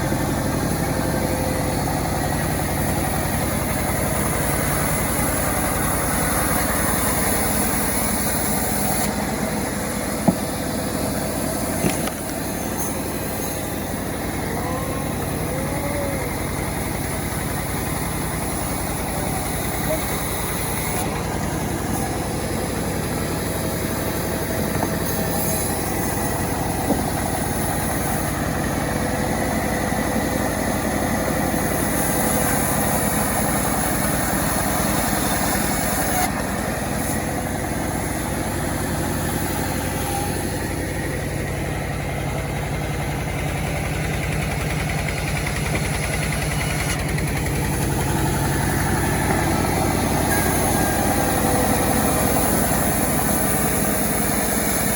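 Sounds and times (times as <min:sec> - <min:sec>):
chainsaw engine running: 0:00.0 - 0:54.9.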